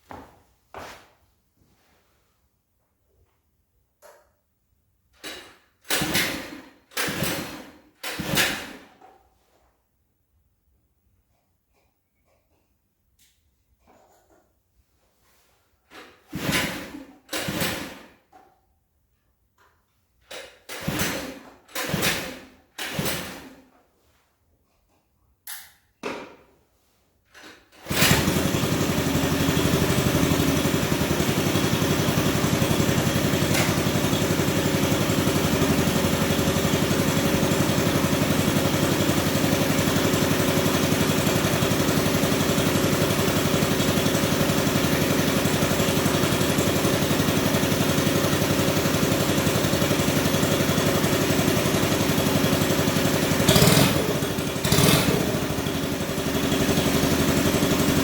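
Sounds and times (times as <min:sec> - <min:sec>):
small combustion engine running: 0:05.8 - 0:08.9, 0:16.3 - 0:18.1, 0:20.7 - 0:23.6, 0:27.7 - 0:58.0.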